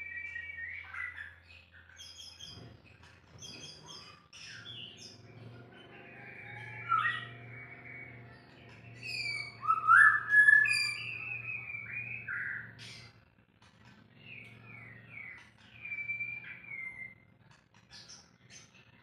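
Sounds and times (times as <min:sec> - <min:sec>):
bird singing whistled phrases: 0:00.0 - 0:01.4, 0:09.0 - 0:12.8, 0:15.1 - 0:17.2.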